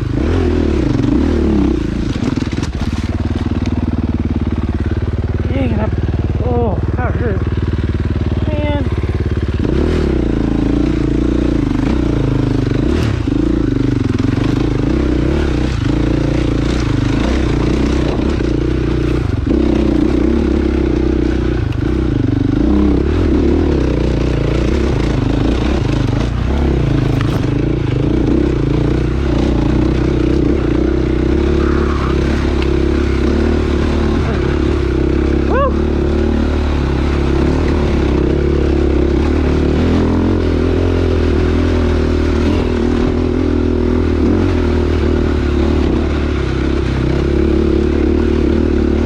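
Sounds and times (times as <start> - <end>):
dirt bike engine revving: 0.0 - 49.0.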